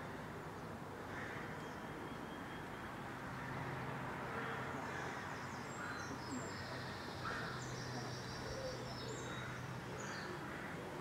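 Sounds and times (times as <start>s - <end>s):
outdoor noise: 0.0s - 11.0s.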